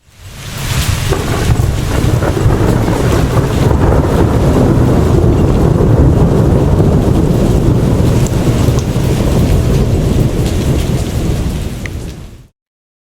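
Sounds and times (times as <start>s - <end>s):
rain: 0.0s - 12.5s
wind gusts buffeting microphone: 0.2s - 12.5s.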